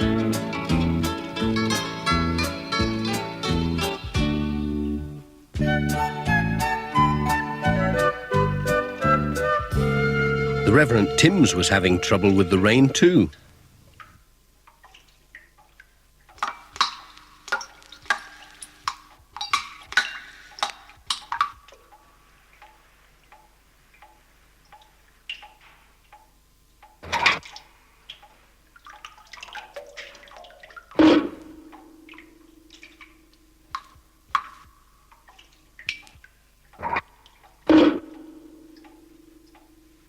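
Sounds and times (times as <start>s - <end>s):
water dripping through roof: 0.0s - 40.0s
faint steady ticking: 12.1s - 40.0s.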